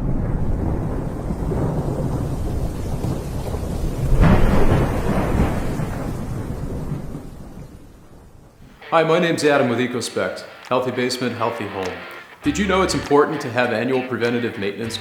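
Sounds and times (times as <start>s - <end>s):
rolling thunder: 0.0s - 8.7s
steady rain: 0.0s - 9.8s.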